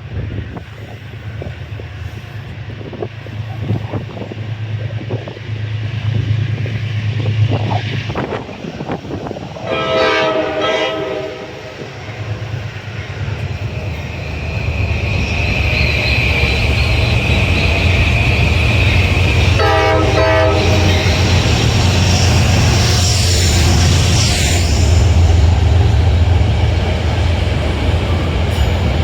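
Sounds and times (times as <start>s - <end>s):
high steady train squeal: 0.0s - 29.0s
train rumble: 0.0s - 29.0s
wind buffeting microphone: 0.0s - 29.0s
train horn chord: 9.6s - 11.8s, 19.6s - 21.2s.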